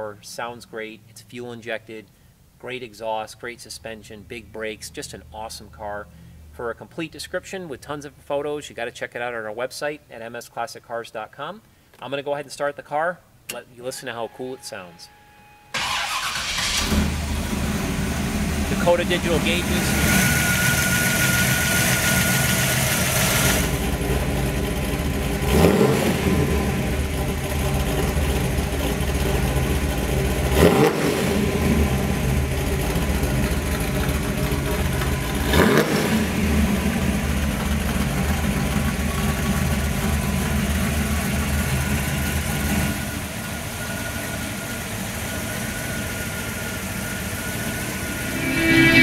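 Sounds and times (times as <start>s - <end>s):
car engine idling: 15.8s - 25.6s, 26.6s - 30.6s, 31.4s - 48.2s
engine revving blips: 33.8s - 37.2s.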